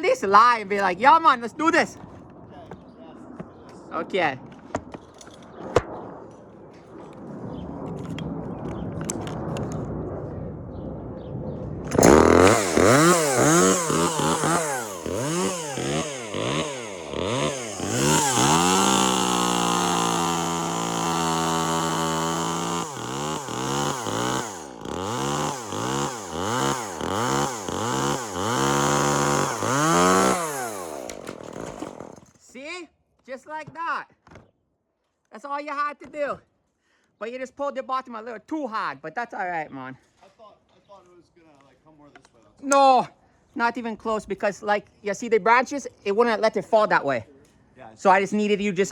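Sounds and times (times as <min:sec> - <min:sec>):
chainsaw cutting wood: 0:11.9 - 0:32.4.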